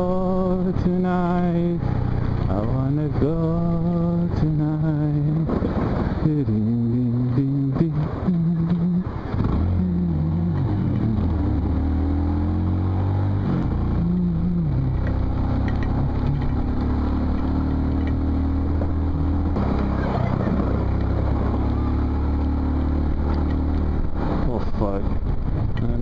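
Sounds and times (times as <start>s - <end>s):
motorcycle engine running: 0.0s - 26.0s
wind noise: 5.3s - 6.4s, 18.6s - 21.9s.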